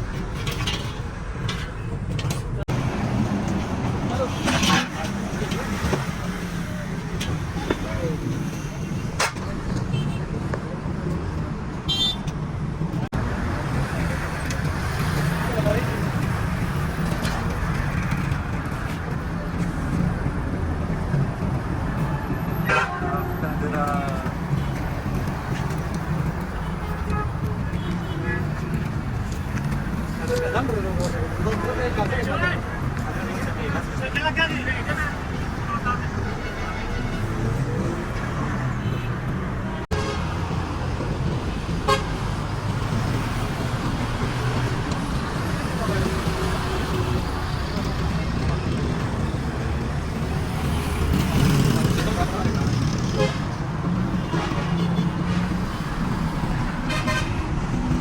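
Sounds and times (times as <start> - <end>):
road traffic rumble: 0.0 - 58.0
vehicle horn beep: 11.9 - 12.2.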